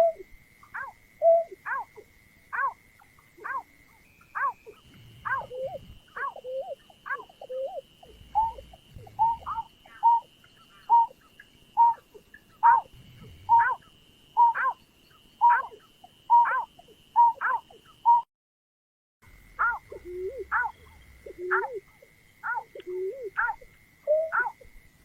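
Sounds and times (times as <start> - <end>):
bird hooting calls: 0.0 - 18.3, 19.6 - 24.8
faint high whine: 0.0 - 18.3, 19.2 - 25.0.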